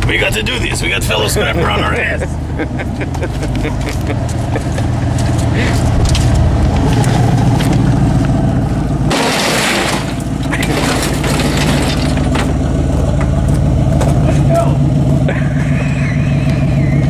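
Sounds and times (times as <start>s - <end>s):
vehicle engine running: 0.0s - 17.0s
clattering rattles: 3.2s - 14.4s
loud rush of noise: 4.8s - 11.0s.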